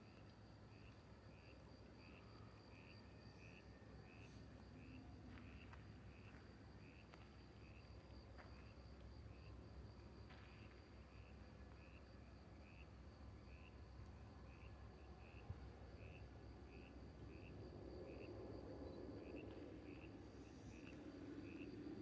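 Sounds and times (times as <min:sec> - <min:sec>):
insect chirps: 0:00.7 - 0:22.0
insects trilling: 0:11.1 - 0:22.0.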